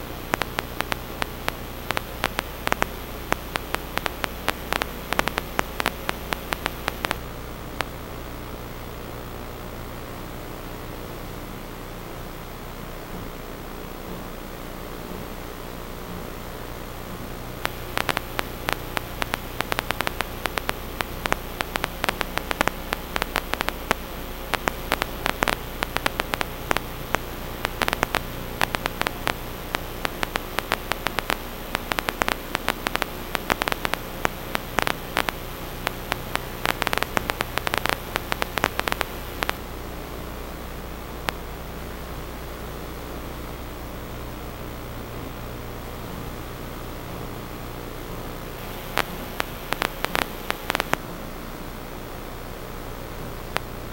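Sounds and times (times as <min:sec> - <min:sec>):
crackling clicks: 0:00.0 - 0:08.0, 0:17.6 - 0:39.7, 0:41.2 - 0:41.5, 0:48.5 - 0:51.0, 0:53.5 - 0:53.8
electrical static hiss and hum: 0:00.0 - 0:53.9.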